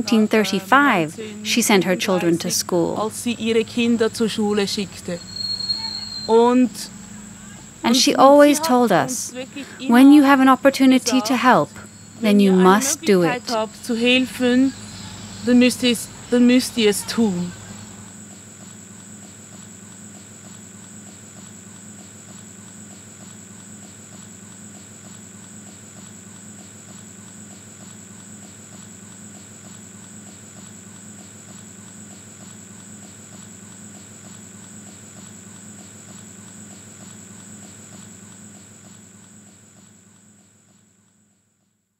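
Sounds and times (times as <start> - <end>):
crickets trilling: 0.0 - 41.0
steady low hum: 0.0 - 41.6.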